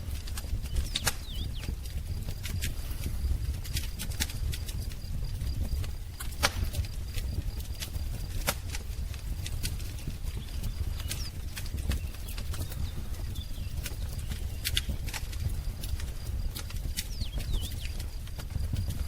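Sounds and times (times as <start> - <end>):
low rumble of flames: 0.0 - 19.0
wood fire crackling and popping: 0.0 - 19.0
faint high bird calls: 17.0 - 18.1.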